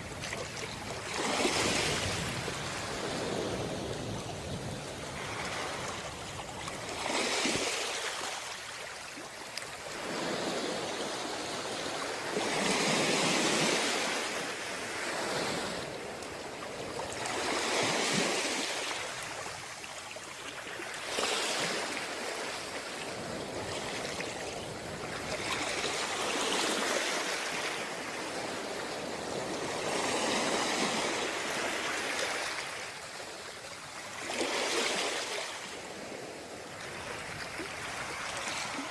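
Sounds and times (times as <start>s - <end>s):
sea waves washing in: 0.0s - 19.8s.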